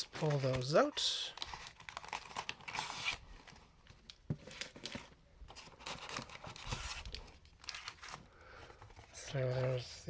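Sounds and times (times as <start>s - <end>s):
foil wrappers crinkling: 0.0s - 3.6s, 5.7s - 8.6s
cardboard rustling: 0.0s - 10.0s.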